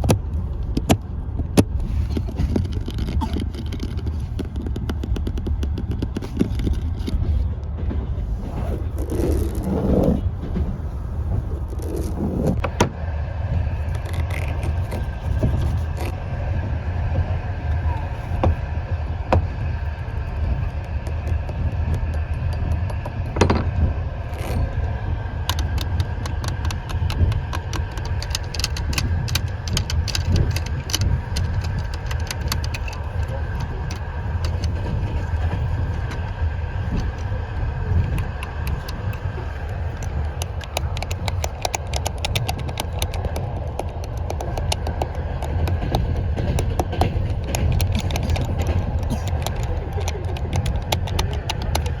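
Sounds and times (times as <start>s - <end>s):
small clicks and taps: 0.0s - 7.2s, 25.4s - 37.3s, 37.9s - 52.0s
train rumble inside compartment: 0.0s - 52.0s.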